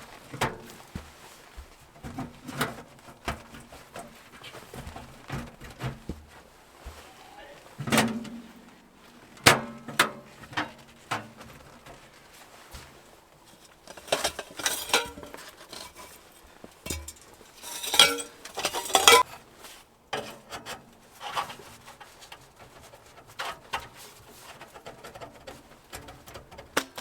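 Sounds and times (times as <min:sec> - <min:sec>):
metal gear clattering: 0:16.9 - 0:19.2.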